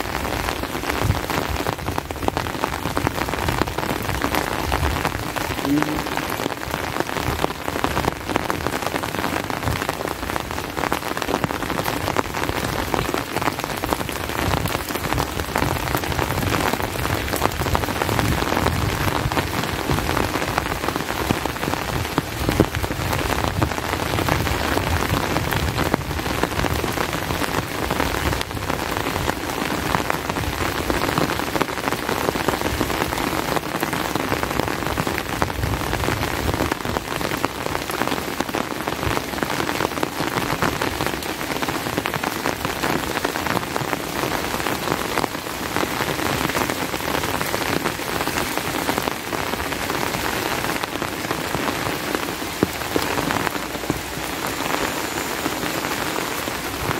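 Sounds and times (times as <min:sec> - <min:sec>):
steady rain patter: 0:00.0 - 0:56.9.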